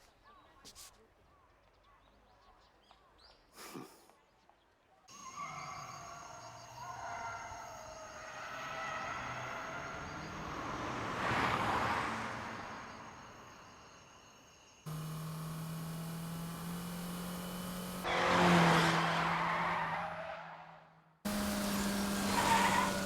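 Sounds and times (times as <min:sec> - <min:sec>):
tyres skidding: 0:06.6 - 0:13.8, 0:14.9 - 0:23.0
car engine running: 0:14.9 - 0:19.6, 0:21.3 - 0:23.0.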